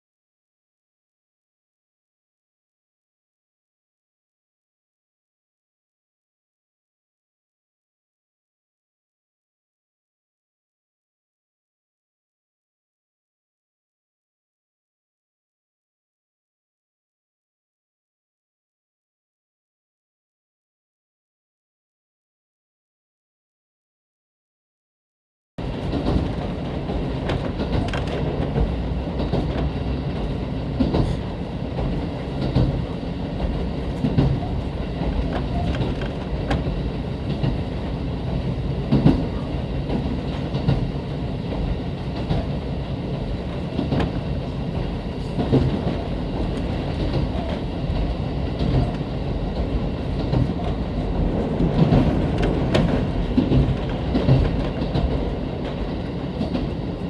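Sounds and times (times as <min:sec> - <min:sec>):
train rumbling: 0:25.6 - 0:57.0
train wheels clicking over rails: 0:25.6 - 0:57.0.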